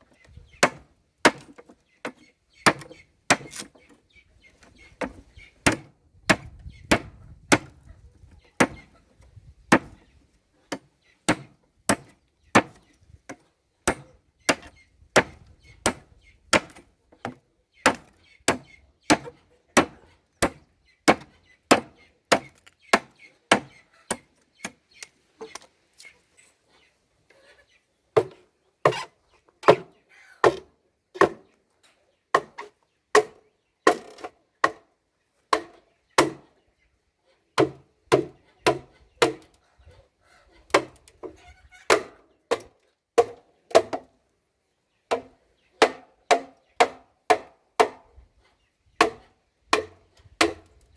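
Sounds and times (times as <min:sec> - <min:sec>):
blade chopping: 0:02.7 - 0:03.7.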